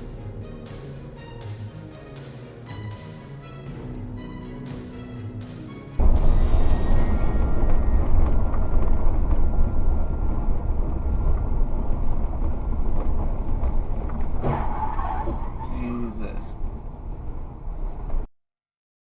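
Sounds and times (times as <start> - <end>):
car driving rumble: 6.0 - 18.2.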